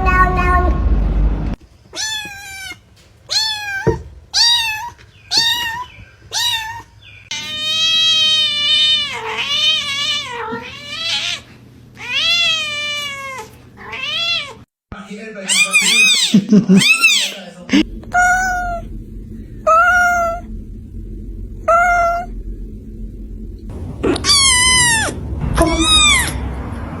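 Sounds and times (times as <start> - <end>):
cat meowing: 0.0 - 0.8, 1.9 - 14.6, 15.5 - 17.4.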